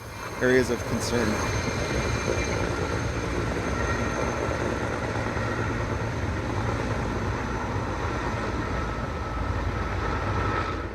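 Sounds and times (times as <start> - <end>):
faint high whine: 0.0 - 5.7.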